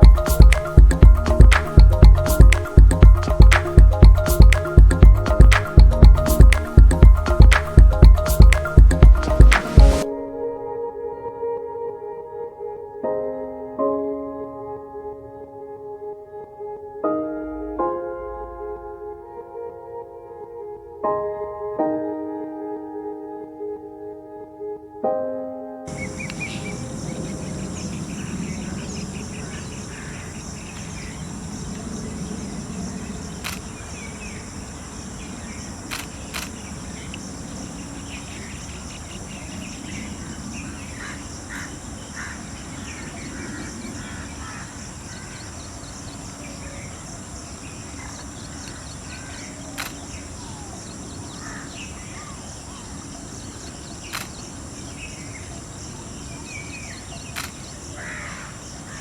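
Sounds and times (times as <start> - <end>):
birds chirping: 0.0 - 10.0, 25.9 - 59.0
low rumble: 0.0 - 10.0
sharp clicks: 33.4 - 33.8, 35.9 - 36.6, 49.8 - 50.1, 54.1 - 54.4, 57.4 - 57.6.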